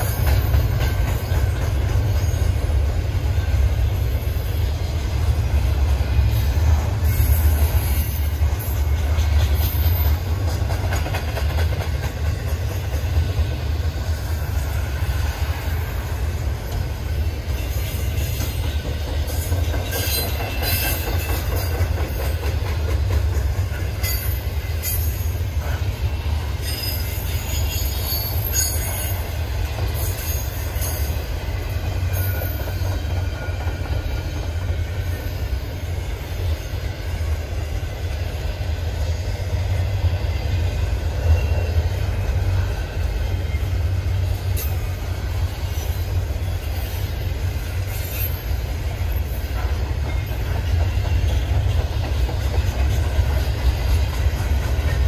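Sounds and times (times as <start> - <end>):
freight train cars rumbling past: 0.0 - 55.0
high-pitched wheel squeals: 26.6 - 29.2.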